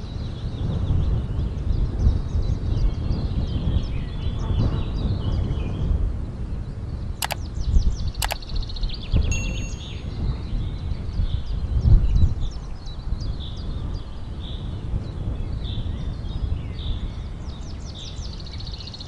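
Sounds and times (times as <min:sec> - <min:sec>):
sharp clicks: 0:07.2 - 0:07.5, 0:08.2 - 0:08.5
small birds chirping: 0:07.2 - 0:07.6, 0:08.2 - 0:10.1
short electronic chime: 0:09.3 - 0:10.0.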